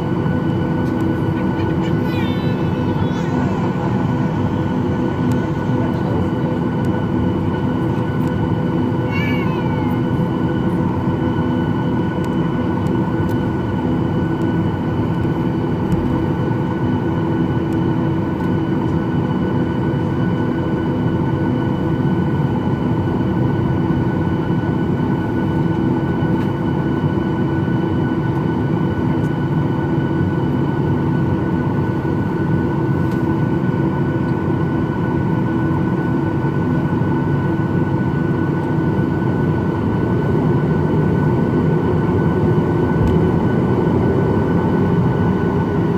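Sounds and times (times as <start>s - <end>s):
jet engines running at low power: 0.0s - 45.9s
steady whining tones: 0.2s - 8.6s.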